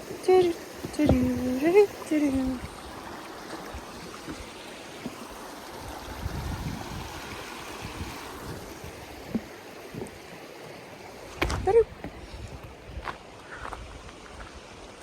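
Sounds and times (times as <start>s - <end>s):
creek water running: 0.0s - 15.0s.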